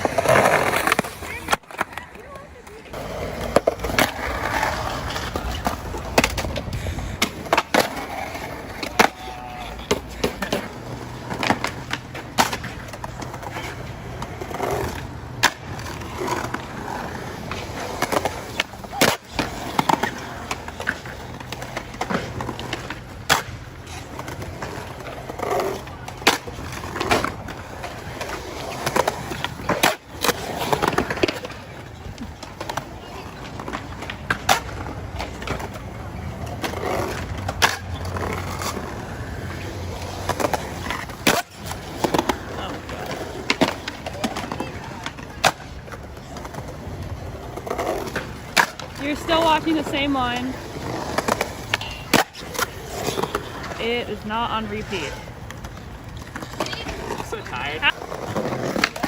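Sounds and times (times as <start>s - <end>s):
skateboards rolling on pavement: 0.0s - 59.0s
skateboard pops and landings: 15.4s - 16.6s.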